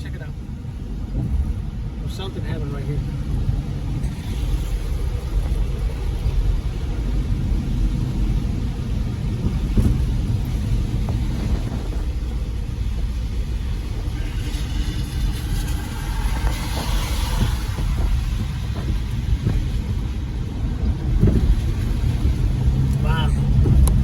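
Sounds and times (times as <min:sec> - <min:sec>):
car engine and road noise: 0:00.0 - 0:24.0
hiss: 0:14.2 - 0:19.6.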